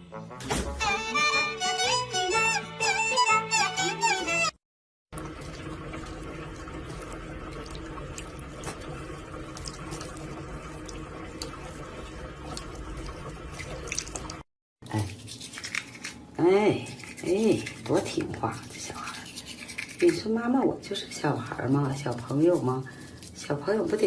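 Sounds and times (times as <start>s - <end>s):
small clicks and drips: 5.2s - 14.4s.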